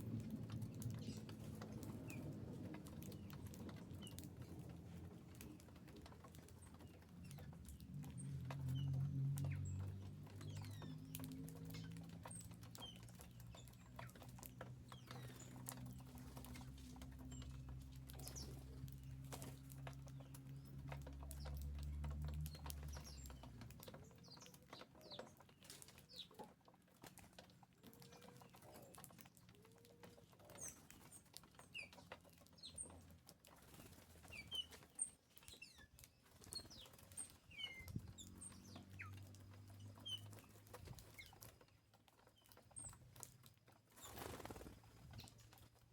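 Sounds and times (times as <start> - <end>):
birds pecking and tapping: 0.0 - 45.9
wing flutters: 43.9 - 45.7.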